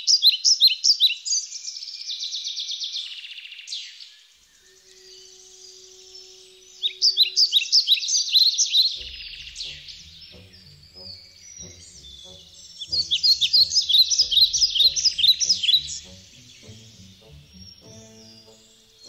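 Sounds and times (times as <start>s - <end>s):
bird chirping: 0.0s - 19.0s
rhythmic background music: 9.0s - 19.0s.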